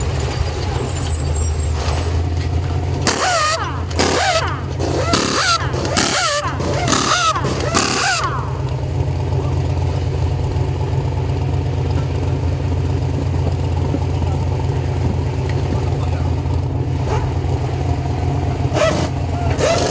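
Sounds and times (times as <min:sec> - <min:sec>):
truck engine idling: 0:00.0 - 0:19.9
pneumatic impact wrench bursts: 0:03.0 - 0:08.6, 0:18.7 - 0:19.9.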